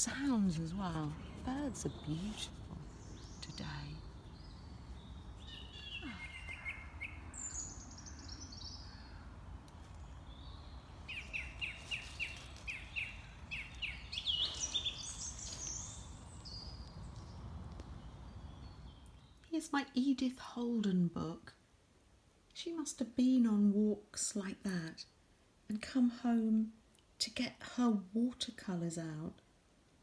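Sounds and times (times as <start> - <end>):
low background rumble: 0.0 - 19.4
songbirds singing: 0.0 - 19.5.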